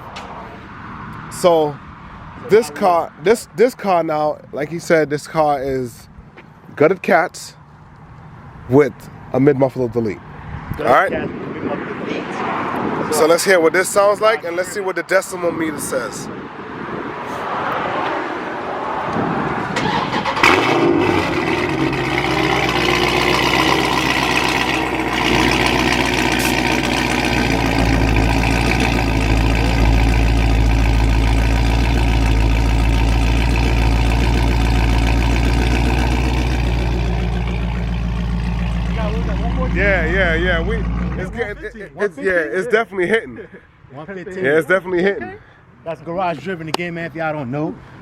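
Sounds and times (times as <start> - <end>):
car engine starting: 19.6 - 41.9
deep loud engine idle: 21.1 - 41.6.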